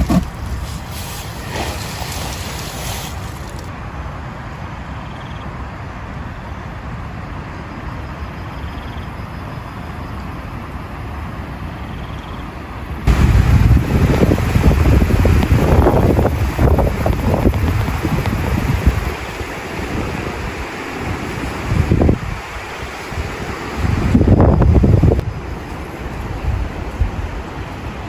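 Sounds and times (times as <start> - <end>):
low rumble of wind: 0.0 - 28.0
heavy rain: 12.7 - 28.0.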